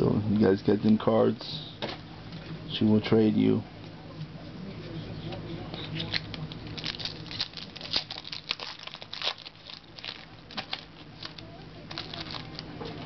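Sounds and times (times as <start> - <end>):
foil wrappers crinkling and tearing: 5.9 - 13.0.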